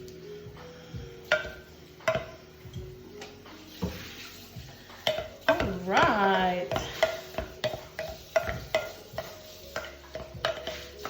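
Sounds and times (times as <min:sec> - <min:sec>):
tool knocking against bowl: 0:01.3 - 0:02.4, 0:05.0 - 0:10.9
tool mashing guacamole in bowl: 0:05.0 - 0:11.0.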